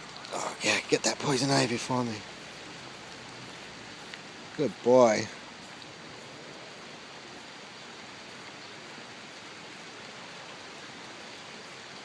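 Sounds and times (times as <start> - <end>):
rain falling steadily: 0.0 - 12.0.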